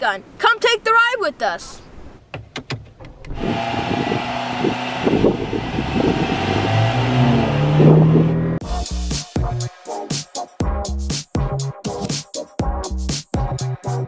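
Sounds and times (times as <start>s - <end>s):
car engine revving: 3.3s - 8.6s.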